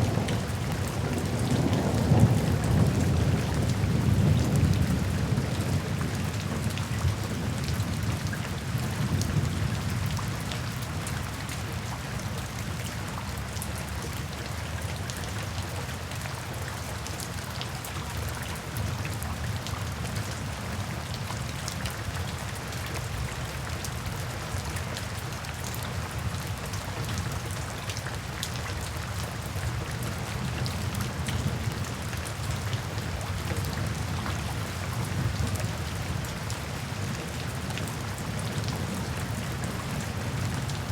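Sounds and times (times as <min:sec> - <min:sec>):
low rumble of thunder: 0:00.0 - 0:11.0
steady rainfall: 0:00.0 - 0:40.9.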